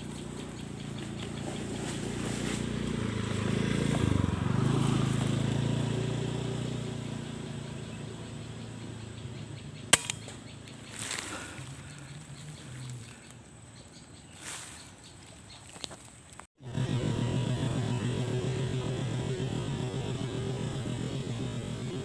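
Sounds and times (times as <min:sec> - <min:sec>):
passing vehicle engine hum: 0:00.0 - 0:13.4, 0:16.6 - 0:22.0
sharp crack: 0:09.9 - 0:10.4.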